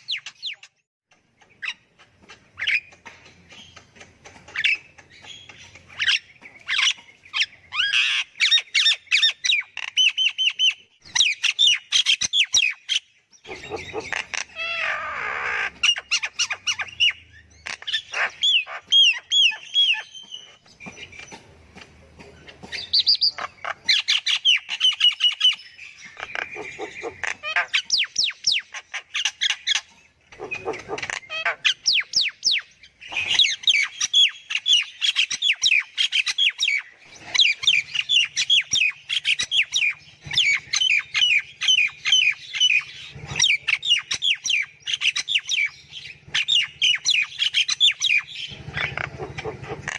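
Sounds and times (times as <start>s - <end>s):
myna squawks and chirps: 13.4s - 20.6s, 22.9s - 49.9s.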